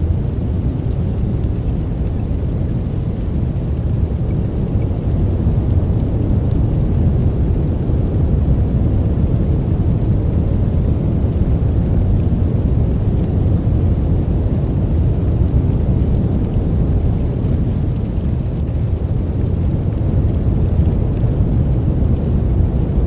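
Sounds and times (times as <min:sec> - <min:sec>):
deep rumbling brown noise: 0:00.0 - 0:23.0.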